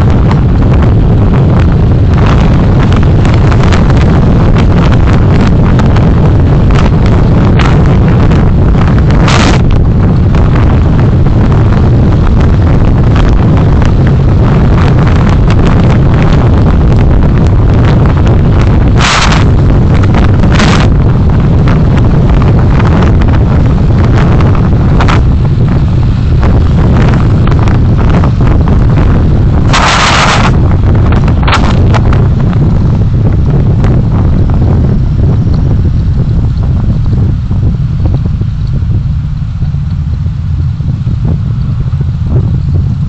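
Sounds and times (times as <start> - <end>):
car road and engine rumble: 0.0 - 43.0
hissy bursts: 29.6 - 30.6.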